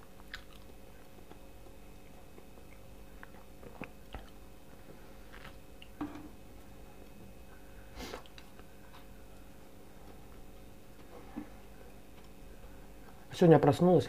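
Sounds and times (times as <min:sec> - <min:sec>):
faint steady hum: 0:00.0 - 0:14.0
person biting and chewing: 0:00.1 - 0:04.4.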